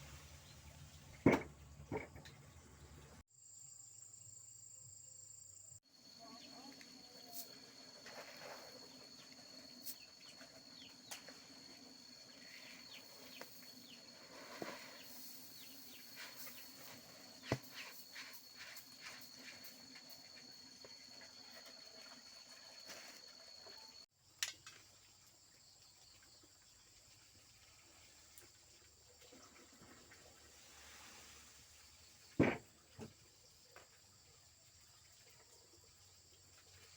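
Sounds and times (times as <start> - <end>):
insect drone: 3.3 - 24.1.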